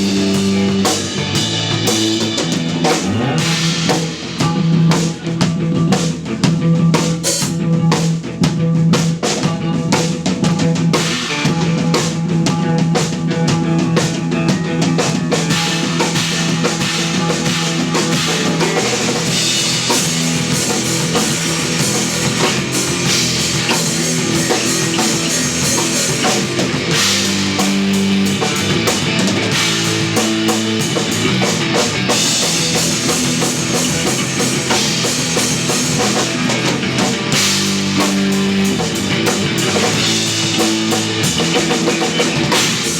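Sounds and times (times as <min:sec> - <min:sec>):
cymbals washing: 0:00.0 - 0:04.6, 0:15.4 - 0:42.9
drum kit: 0:00.0 - 0:42.9
post-rock band playing: 0:00.0 - 0:42.9.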